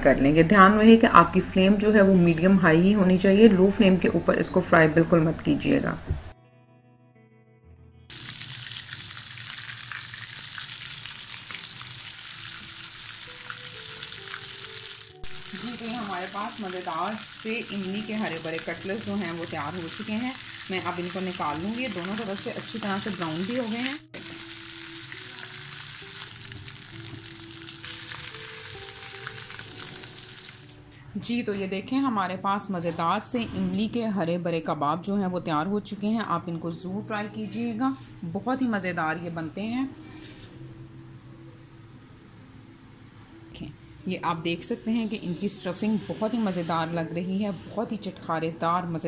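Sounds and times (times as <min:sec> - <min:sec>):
food sizzling in oil: 0:08.1 - 0:30.9.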